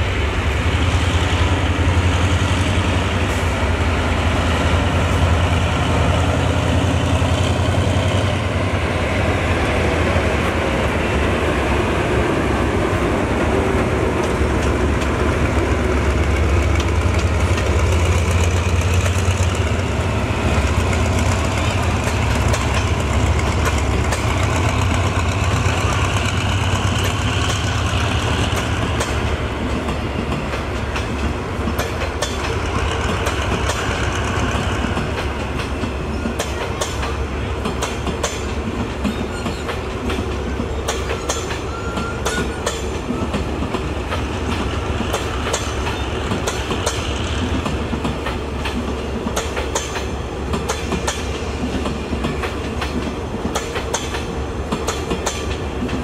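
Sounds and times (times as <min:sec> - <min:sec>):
diesel locomotive rumble: 0:00.0 - 0:56.0
wheels clicking over rail joints: 0:20.8 - 0:56.0.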